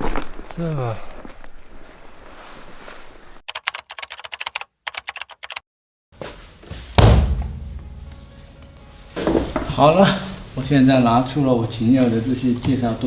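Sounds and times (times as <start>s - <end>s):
heavy thud: 6.9s - 8.4s.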